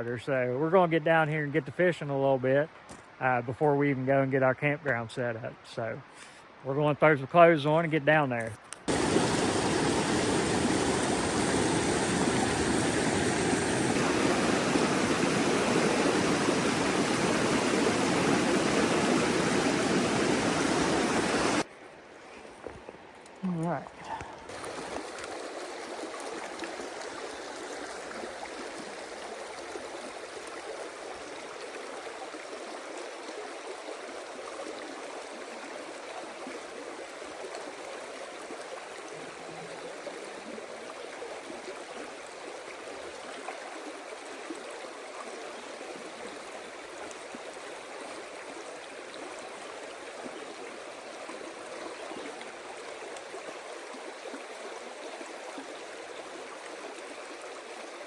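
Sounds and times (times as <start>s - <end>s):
stream rushing over rocks: 8.9s - 21.7s, 24.4s - 58.0s.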